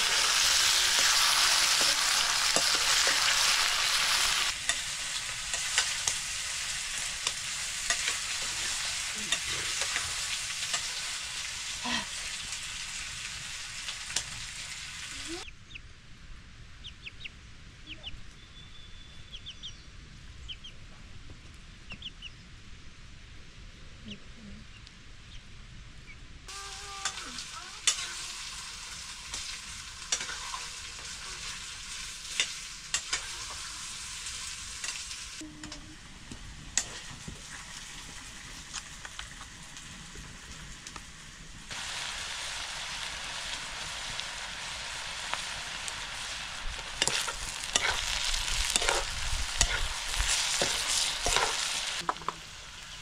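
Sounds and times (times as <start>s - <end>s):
food sizzling in pan: 0.0s - 15.5s, 26.5s - 53.0s.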